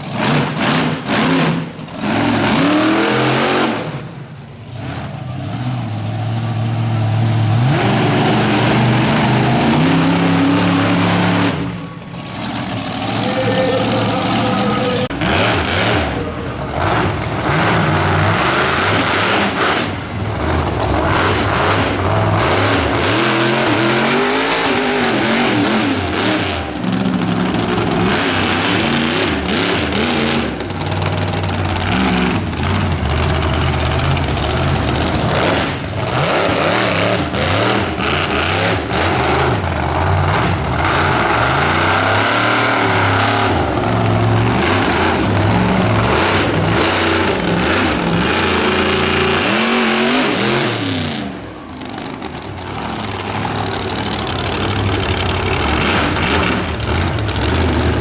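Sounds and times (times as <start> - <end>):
monster truck engine revving: 0.0 - 58.0
truck on the track: 0.0 - 58.0.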